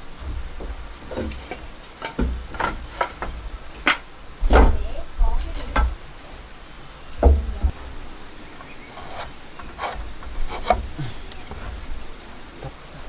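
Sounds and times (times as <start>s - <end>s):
wooden knocks and thumps: 0.0s - 6.4s, 7.0s - 13.0s
heavy low thuds: 2.3s - 6.1s, 7.0s - 8.1s.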